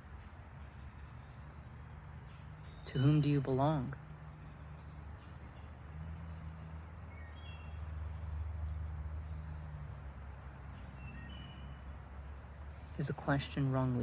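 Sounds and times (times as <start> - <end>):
faint high hum: 0.0 - 14.0.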